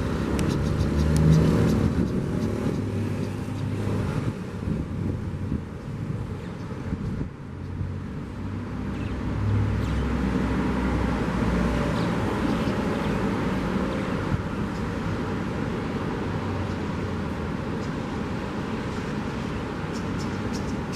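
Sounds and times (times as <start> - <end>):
car passing by: 0.0 - 20.9
sea waves: 10.1 - 20.9.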